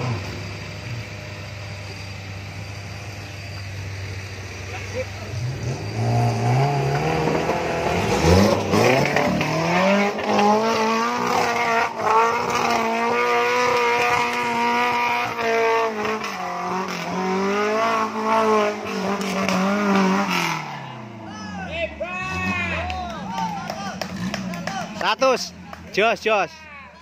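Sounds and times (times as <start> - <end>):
car engine revving hard: 4.1 - 21.3, 22.2 - 26.2.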